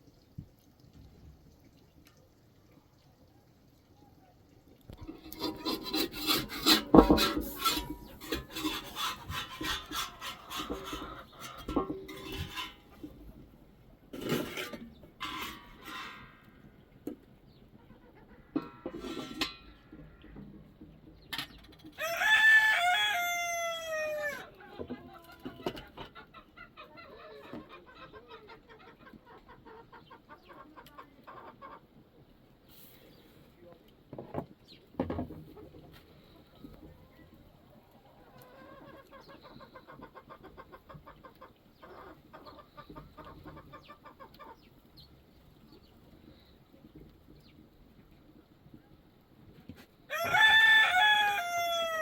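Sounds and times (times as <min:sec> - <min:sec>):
scraping and rubbing: 0:04.9 - 0:13.4, 0:14.2 - 0:16.6, 0:18.6 - 0:20.2
chickens clucking: 0:04.9 - 0:52.0.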